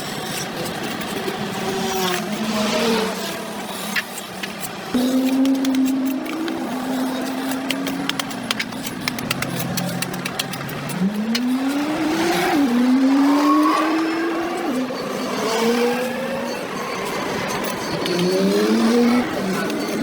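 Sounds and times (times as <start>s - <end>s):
sharp clicks: 4.0s - 12.5s
vehicle engine accelerating: 4.9s - 20.0s.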